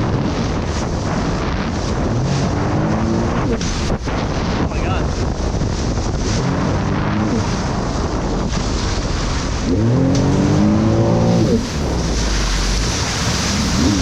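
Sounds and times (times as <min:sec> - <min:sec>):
water noise: 0:00.0 - 0:14.0
wind: 0:00.0 - 0:14.0
jet ski engine revving: 0:01.2 - 0:04.5, 0:05.9 - 0:14.0.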